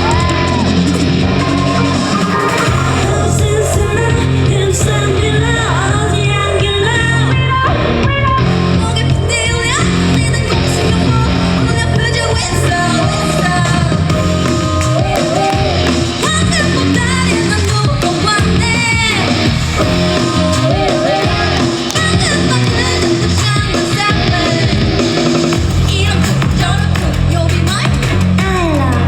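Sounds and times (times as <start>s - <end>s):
pop song with female vocal: 1.6s - 29.0s
heavy beat: 10.0s - 29.0s.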